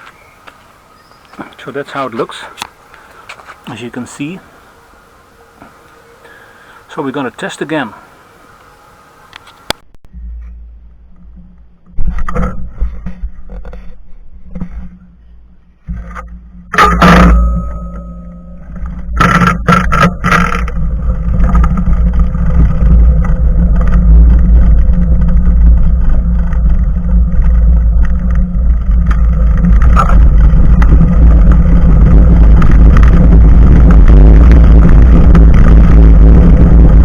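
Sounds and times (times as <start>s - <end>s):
bicycle tyre rumble: 0.0s - 37.0s
clunks: 9.3s - 35.9s
wind buffeting microphone: 18.4s - 37.0s.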